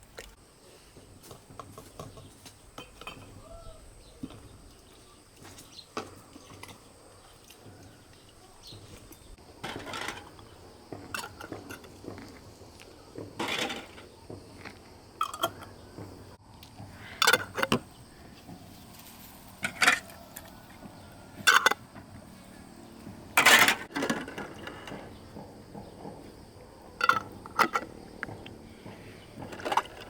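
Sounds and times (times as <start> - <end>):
kitchenware clinks and knocks: 1.6 - 3.4, 9.6 - 12.4, 13.4 - 14.1, 15.2 - 15.7, 17.2 - 17.9, 21.4 - 21.8, 23.4 - 26.2, 26.9 - 28.4, 29.4 - 30.0.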